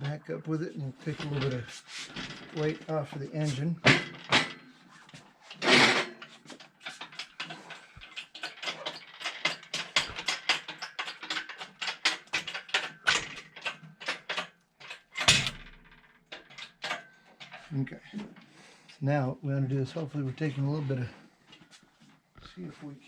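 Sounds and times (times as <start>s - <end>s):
metal clanks: 1.0s - 4.8s, 5.5s - 18.6s.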